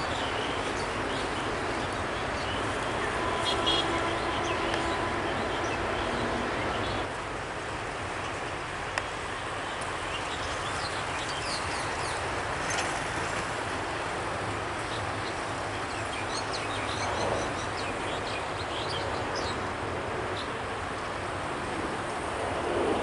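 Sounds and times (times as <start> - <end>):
distant diesel train rumble: 0.0 - 10.1.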